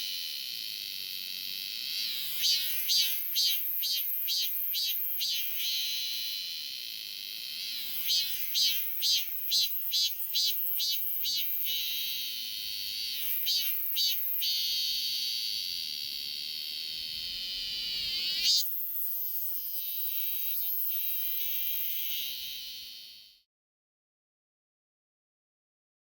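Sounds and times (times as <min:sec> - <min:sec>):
cicada singing: 0:00.0 - 0:18.6.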